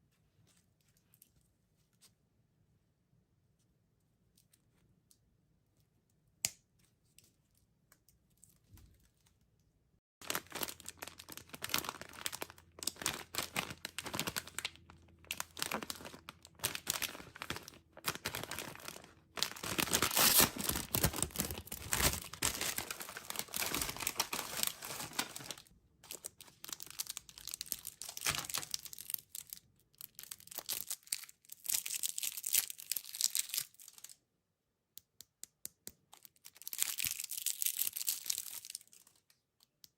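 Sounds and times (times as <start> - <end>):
candy wrappers crinkling and tearing: 10.2 - 34.2, 36.1 - 39.7.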